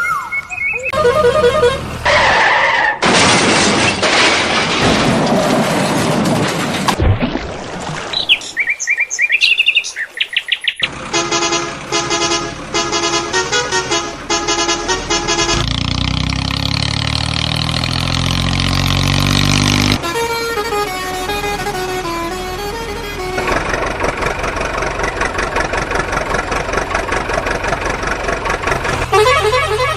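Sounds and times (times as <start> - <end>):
high chirping tones: 0.0 - 1.8
engine sound rising in pitch: 0.0 - 2.5, 10.9 - 29.9
stepping tune of horn tones: 0.8 - 2.2, 10.9 - 16.4, 19.5 - 24.3, 28.7 - 29.9
cartoon horn pattern: 0.9 - 2.0, 11.1 - 15.7, 19.9 - 23.7, 28.9 - 29.9.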